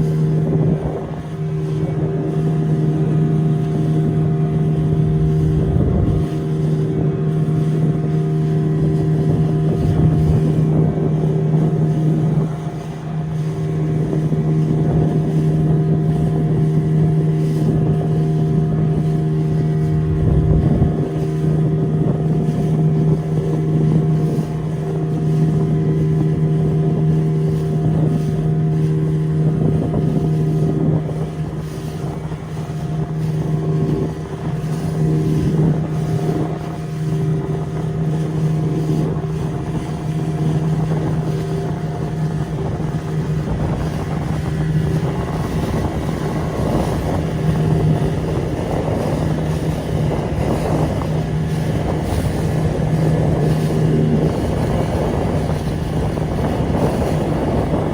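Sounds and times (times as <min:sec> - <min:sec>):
motorboat engine running: 0:00.0 - 0:57.9
rushing wind: 0:00.0 - 0:57.9
water rushing: 0:00.0 - 0:57.9.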